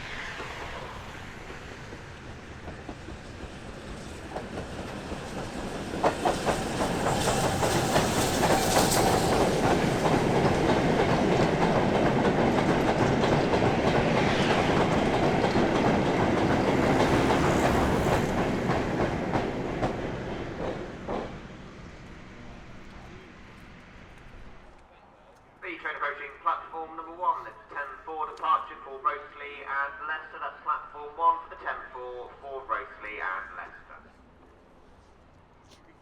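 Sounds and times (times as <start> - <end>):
train wheels on rails: 0.0 - 25.5
sharp knocks of train: 0.2 - 21.6.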